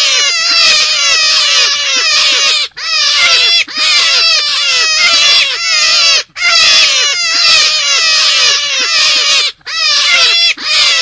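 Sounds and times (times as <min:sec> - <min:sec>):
squeaky animal calls: 0:00.0 - 0:11.0.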